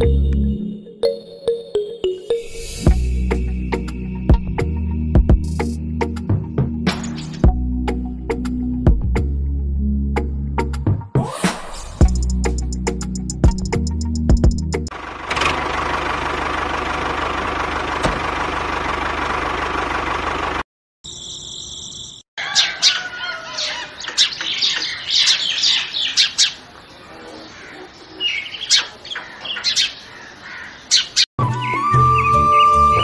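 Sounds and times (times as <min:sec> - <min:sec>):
birds chirping: 0:21.1 - 0:33.0.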